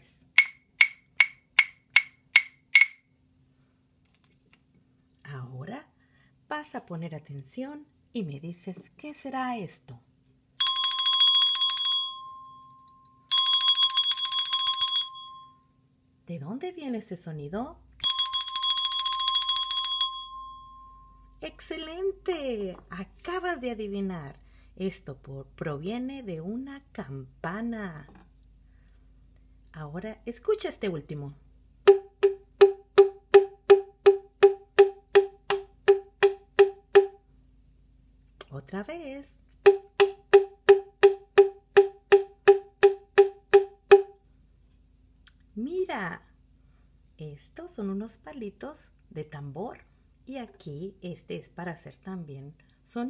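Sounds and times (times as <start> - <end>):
drumsticks tapping wooden percussion: 0.3 - 3.1, 31.9 - 37.2, 39.6 - 44.2
bell rung in rapid trill: 10.6 - 15.6, 18.0 - 21.3.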